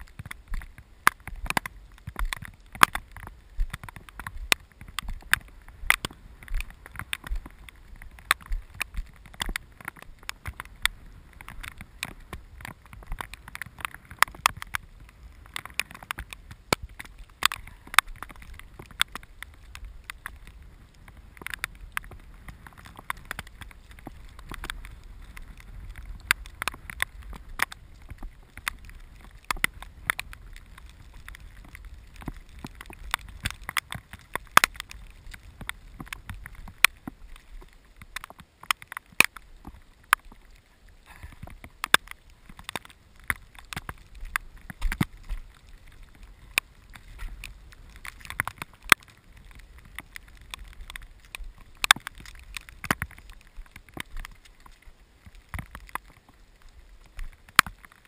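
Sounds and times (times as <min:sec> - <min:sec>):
wind rumble on microphone: 0:00.0 - 0:57.9
raindrops ticking on camera housing: 0:00.0 - 0:58.0.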